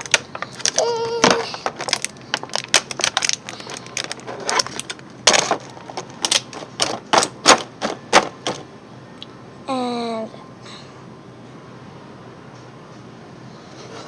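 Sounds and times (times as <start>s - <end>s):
plastic toys clicking together: 0.0s - 8.6s.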